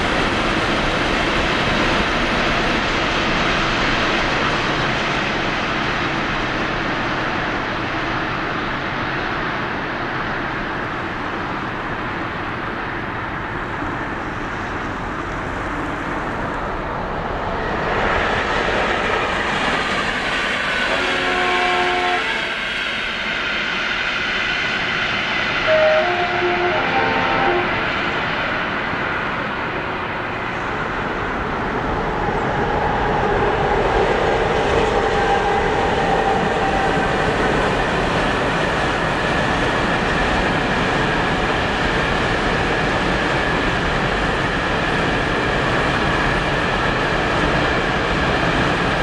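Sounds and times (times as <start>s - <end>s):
freight train rolling on rails: 0.0s - 49.0s
locomotive multi-tone horn: 20.9s - 22.6s, 25.6s - 27.8s.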